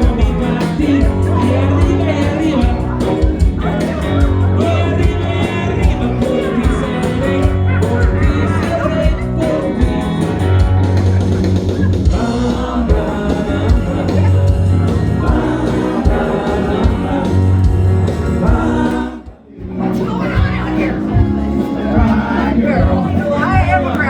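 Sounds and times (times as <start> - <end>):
person singing: 0.0 - 20.1, 21.2 - 24.0
live rock band playing: 0.0 - 24.0.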